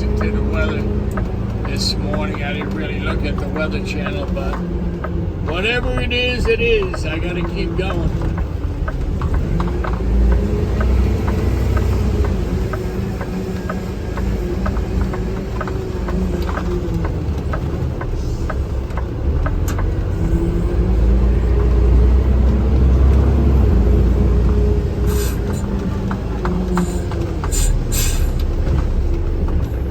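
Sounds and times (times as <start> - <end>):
engine and road noise rumble: 0.0 - 29.9
faint regular ticking: 0.0 - 29.9.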